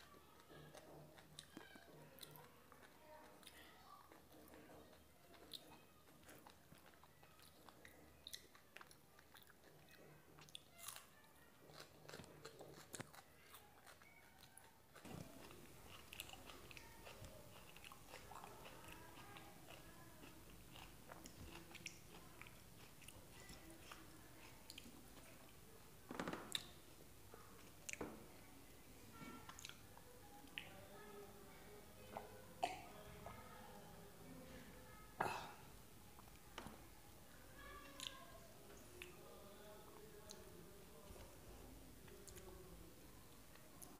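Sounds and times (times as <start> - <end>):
chewing and crunching food: 0.0 - 25.6, 29.1 - 31.0, 37.6 - 39.2.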